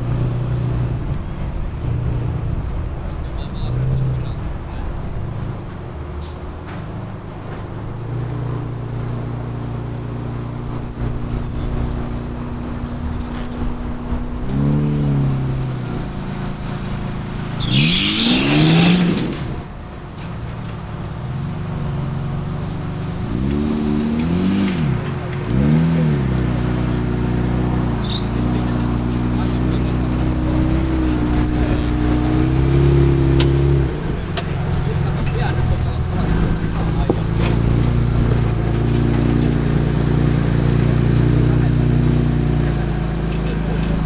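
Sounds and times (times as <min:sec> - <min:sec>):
engine idling and revving: 0:00.0 - 0:44.0.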